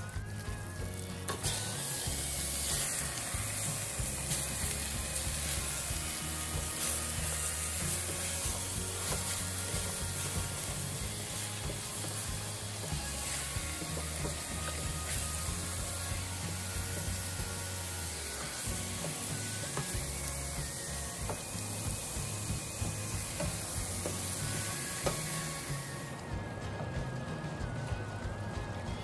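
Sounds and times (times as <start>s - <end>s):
spatula stirring: 0.0s - 26.0s
chicken sizzling in a pot: 0.0s - 29.0s.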